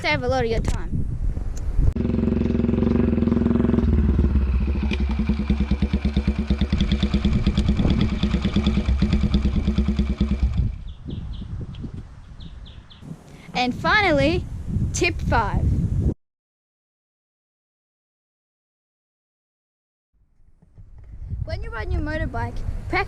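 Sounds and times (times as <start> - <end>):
small motorbike engine running: 2.0 - 11.0.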